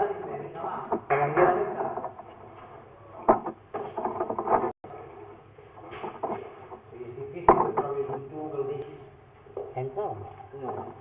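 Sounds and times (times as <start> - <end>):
sharp knocks: 0.8 - 4.7, 7.4 - 8.3
indistinct voices: 5.8 - 11.0.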